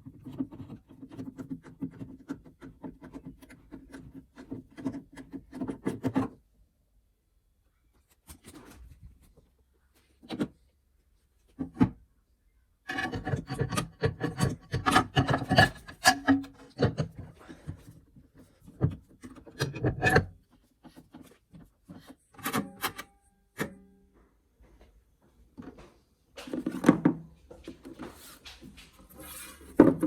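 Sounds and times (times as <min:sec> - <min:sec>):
rubbing and scraping on wood: 0:27.6 - 0:30.0.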